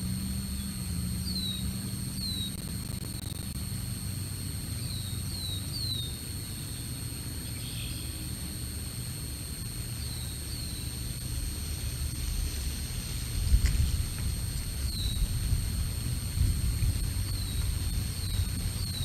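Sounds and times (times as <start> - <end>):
faint electronic whine: 0.0 - 19.0
small bird chirping: 0.6 - 3.4
low rumbling noise: 11.1 - 19.0.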